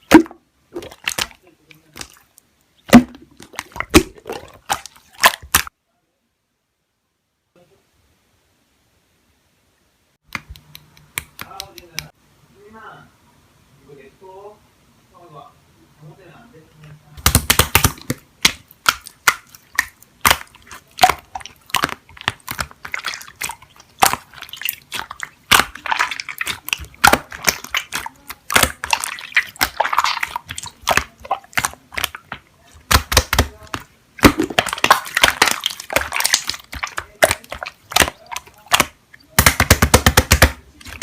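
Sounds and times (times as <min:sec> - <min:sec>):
slime squelching: 0:00.0 - 0:05.7, 0:17.2 - 0:41.0
air pockets popping in slime: 0:02.9 - 0:05.7, 0:17.2 - 0:41.0.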